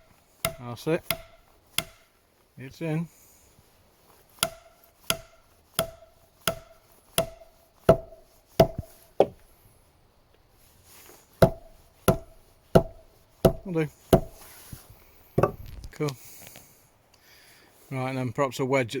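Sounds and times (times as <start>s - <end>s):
knocks driving wooden wedge: 0.0s - 2.2s, 4.3s - 9.5s, 11.3s - 15.8s.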